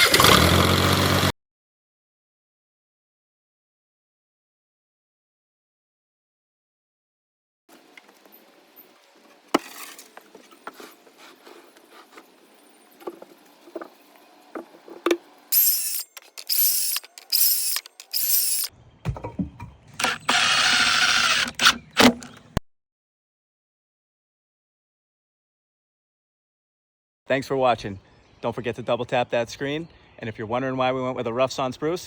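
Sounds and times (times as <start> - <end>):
power drill on wooden boards: 15.6 - 18.7, 20.0 - 22.4.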